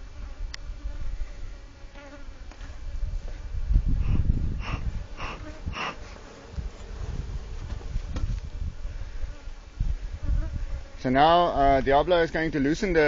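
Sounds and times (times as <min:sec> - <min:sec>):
bees buzzing: 0:00.1 - 0:11.1
short hissing bursts: 0:04.0 - 0:06.5.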